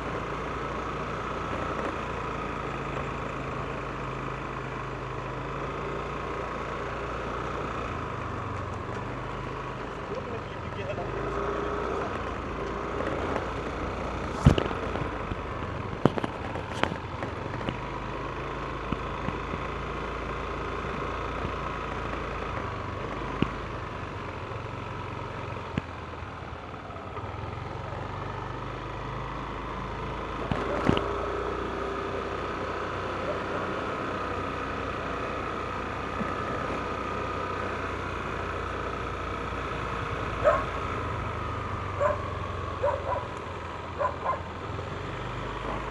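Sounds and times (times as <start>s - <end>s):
road noise: 0.0s - 45.9s
scooter engine drone: 0.0s - 45.9s
sharp knocks: 14.3s - 15.1s.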